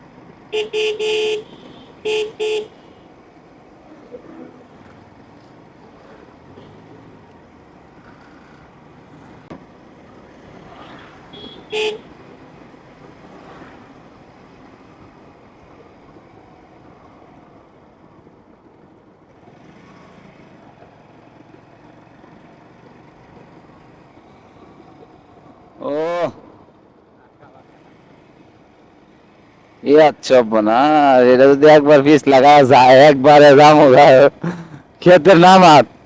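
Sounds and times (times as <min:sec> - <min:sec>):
road and traffic noise: 0:00.0 - 0:36.0
vehicle horn toot: 0:00.5 - 0:03.0, 0:11.3 - 0:12.1.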